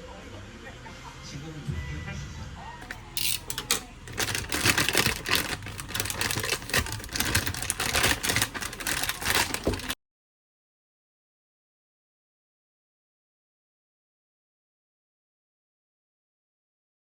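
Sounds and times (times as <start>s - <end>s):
objects clicking and rustling: 2.8s - 10.0s.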